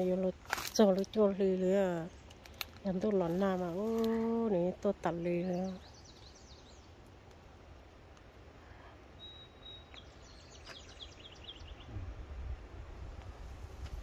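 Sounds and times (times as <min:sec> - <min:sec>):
small birds chirping: 0:00.0 - 0:07.4, 0:08.7 - 0:12.0
high bird whistle: 0:09.2 - 0:10.0.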